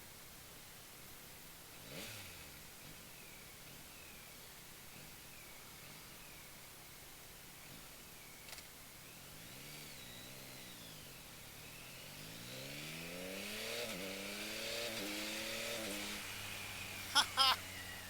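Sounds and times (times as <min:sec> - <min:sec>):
motorcycle engine accelerating: 0:11.0 - 0:18.0.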